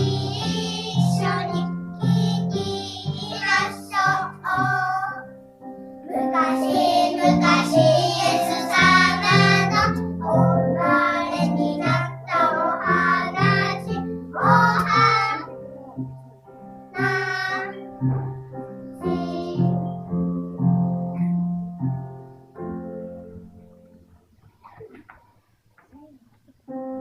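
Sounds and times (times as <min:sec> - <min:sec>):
child singing: 0:00.0 - 0:05.4, 0:06.1 - 0:16.0, 0:17.0 - 0:20.0.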